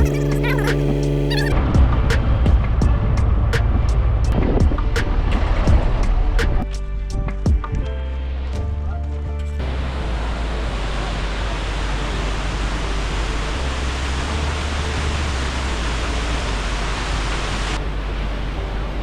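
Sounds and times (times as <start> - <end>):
waterfall rushing: 9.6 - 19.0.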